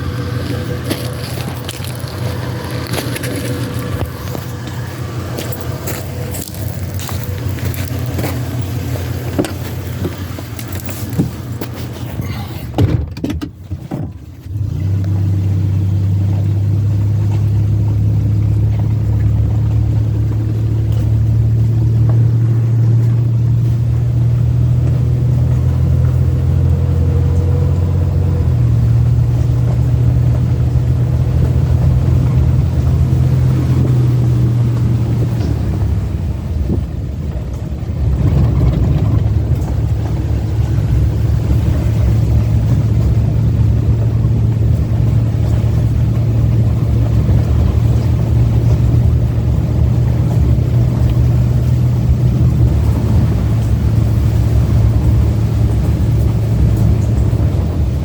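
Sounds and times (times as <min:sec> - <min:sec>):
engine humming: 0:00.0 - 0:58.0
knocks and handling noise: 0:00.2 - 0:14.2.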